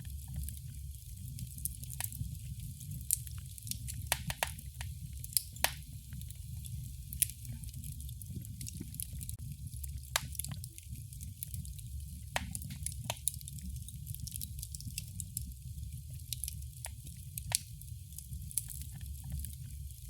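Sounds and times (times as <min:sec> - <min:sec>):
fire crackling and popping: 0:00.0 - 0:20.0
fire flame rumbling: 0:00.0 - 0:20.0.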